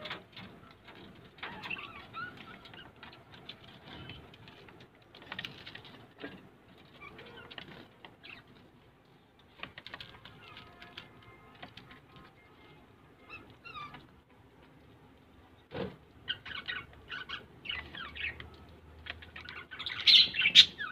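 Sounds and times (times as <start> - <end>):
bird chirping and warbling: 0.0 - 4.7, 12.2 - 14.1, 15.6 - 20.9.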